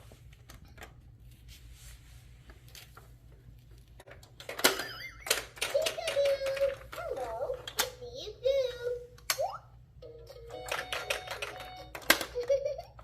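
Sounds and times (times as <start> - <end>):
tapping on plastic toy: 10.6 - 12.5.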